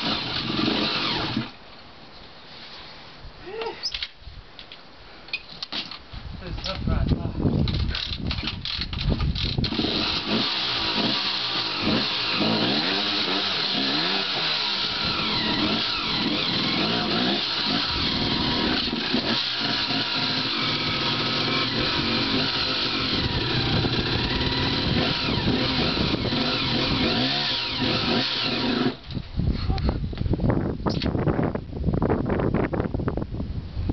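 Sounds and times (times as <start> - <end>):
dirt bike engine revving: 0.0 - 1.5, 9.6 - 29.0.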